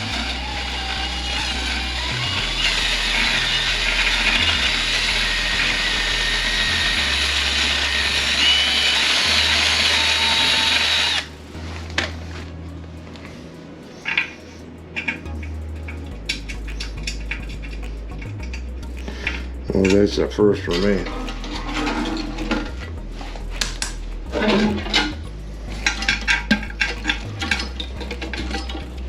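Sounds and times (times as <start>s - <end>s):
power drill running: 0.0s - 11.3s.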